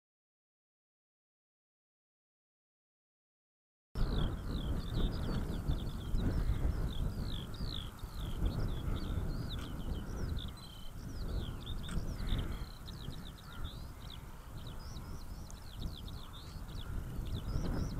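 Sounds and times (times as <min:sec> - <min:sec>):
birdsong chirps and whistles: 0:04.0 - 0:17.9
low wind rumble: 0:04.0 - 0:17.9.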